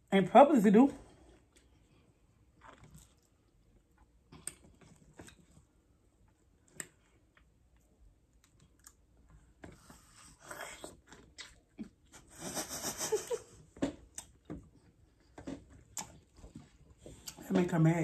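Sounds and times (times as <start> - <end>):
people chewing fruit: 1.1 - 17.5
biting into watermelon: 2.6 - 3.3, 10.3 - 12.0.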